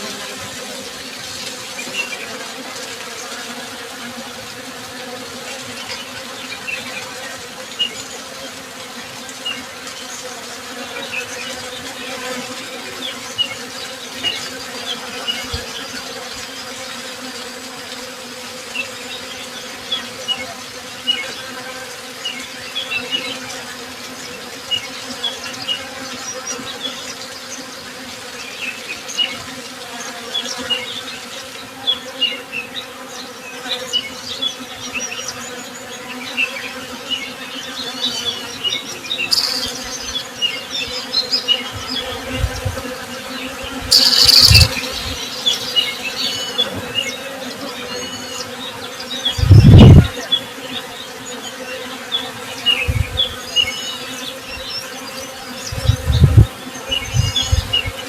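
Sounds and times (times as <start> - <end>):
honey bees buzzing: 0.0 - 58.0
high bird chirps: 39.3 - 40.2, 43.9 - 45.0.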